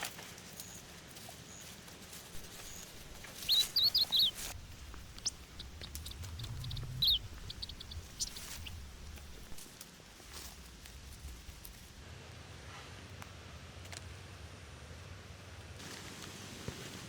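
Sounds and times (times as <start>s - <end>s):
small bird chirping: 2.3s - 9.8s
faint ticks: 4.6s - 9.6s.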